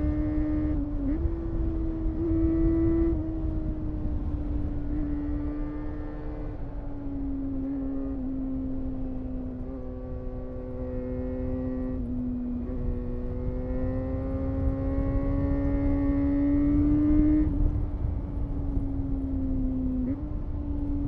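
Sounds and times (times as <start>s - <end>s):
low wind rumble: 0.0s - 21.0s
motorcycle engine revving high: 9.2s - 17.7s.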